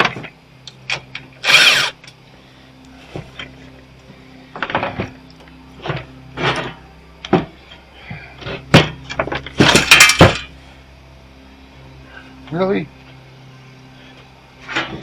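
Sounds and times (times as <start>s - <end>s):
faint steady hum: 0.0s - 15.0s
rattling scrape: 5.8s - 6.8s, 14.6s - 15.0s
hand tools clanking on metal: 8.4s - 10.5s.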